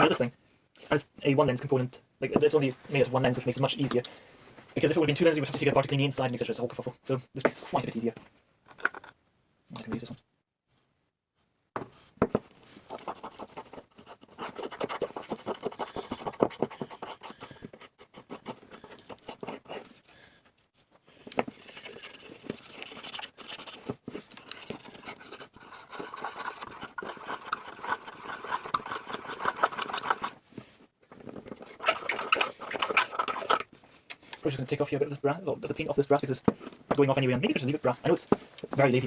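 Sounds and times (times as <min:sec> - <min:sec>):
scratching and rubbing on camera part: 0:11.8 - 0:33.8.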